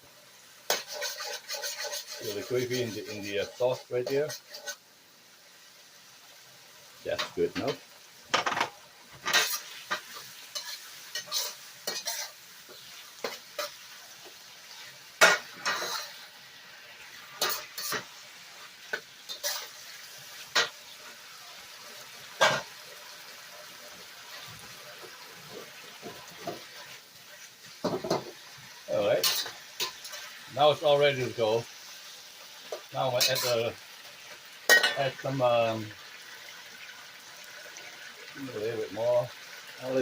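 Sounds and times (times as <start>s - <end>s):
faint sizzle: 0.0s - 40.0s
spatula scraping a pan: 0.7s - 4.9s, 9.2s - 16.3s, 17.1s - 21.2s, 24.3s - 30.4s, 32.6s - 33.7s.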